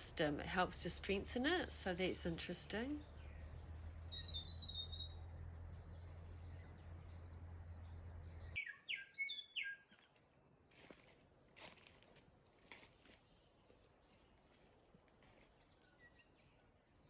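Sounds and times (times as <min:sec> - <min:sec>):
low rumble: 0:00.0 - 0:08.6
birds chirping: 0:00.0 - 0:10.1, 0:12.0 - 0:17.0.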